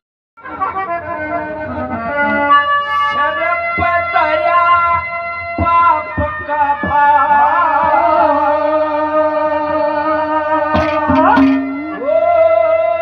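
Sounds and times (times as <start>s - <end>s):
reed instrument chords and melody: 0.4s - 8.6s, 10.5s - 12.7s
hand drum strokes: 10.7s - 12.3s.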